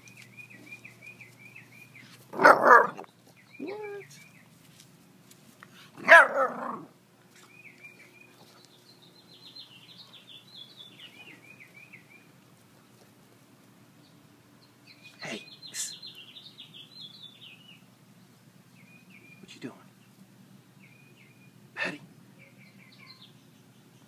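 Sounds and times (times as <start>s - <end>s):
songbird chirping: 0.0s - 5.0s, 5.6s - 24.0s.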